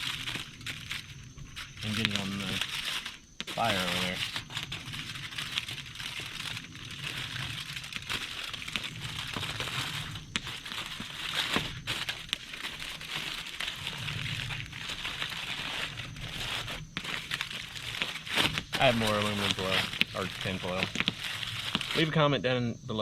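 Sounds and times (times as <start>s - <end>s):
aluminium foil crinkling: 0.0s - 22.2s.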